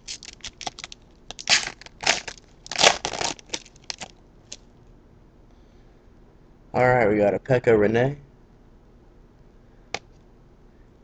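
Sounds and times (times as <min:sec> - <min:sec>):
foil wrapper tearing and crinkling: 0:00.0 - 0:04.2.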